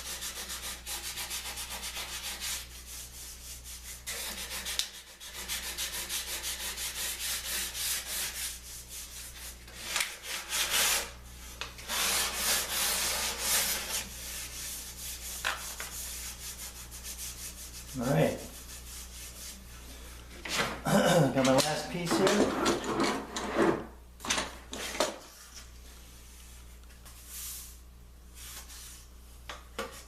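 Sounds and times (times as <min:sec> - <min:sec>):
rubbing on wood: 0:00.0 - 0:11.2, 0:11.8 - 0:19.7
steady low hum: 0:05.2 - 0:29.8.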